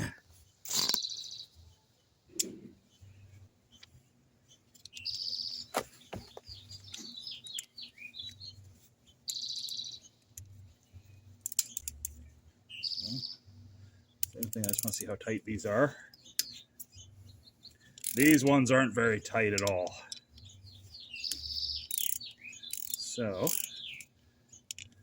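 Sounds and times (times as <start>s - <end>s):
small birds chirping: 0.0s - 25.0s
socket ratchet clicking: 11.4s - 12.2s, 17.9s - 18.4s, 21.3s - 24.1s.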